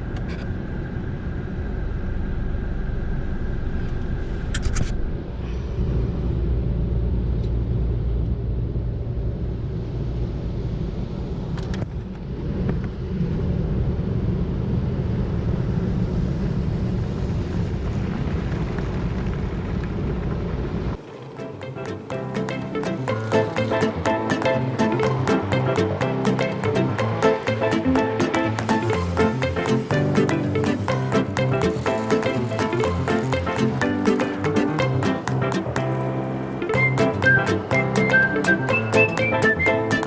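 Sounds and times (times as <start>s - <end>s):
car wash low rumble: 5.1s - 22.2s.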